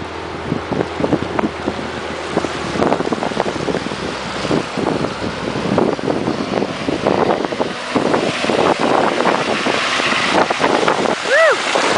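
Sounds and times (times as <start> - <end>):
truck engine running low: 0.0 - 11.9
water rushing and splashing: 0.0 - 11.9
wind buffeting microphone: 0.0 - 11.9.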